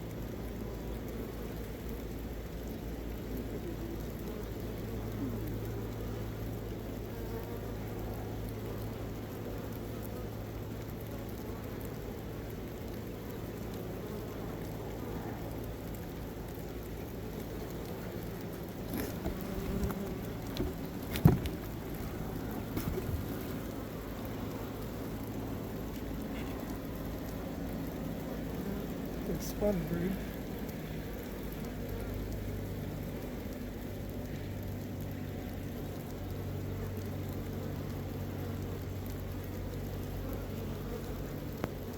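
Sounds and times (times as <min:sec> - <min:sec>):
honey bees buzzing: 0:00.6 - 0:41.9
knocks and bumps: 0:18.9 - 0:23.6.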